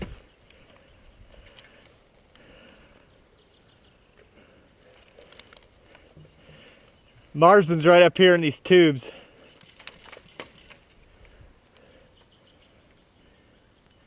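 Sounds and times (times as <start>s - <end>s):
faint clicks: 4.9s - 6.2s.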